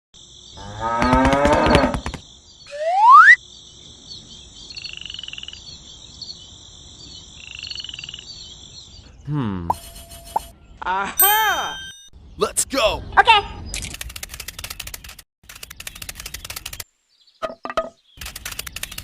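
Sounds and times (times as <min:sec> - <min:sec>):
frogs croaking: 0:00.2 - 0:09.4
insects chirring: 0:00.2 - 0:10.5, 0:13.9 - 0:19.0
bullock mooing: 0:00.6 - 0:02.0
sharp rising whistle: 0:02.7 - 0:03.4.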